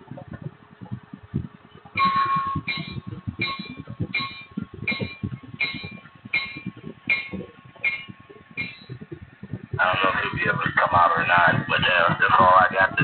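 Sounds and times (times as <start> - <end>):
diesel engine rumble: 0.0 - 13.0
rhythmic click-clack: 0.0 - 13.0.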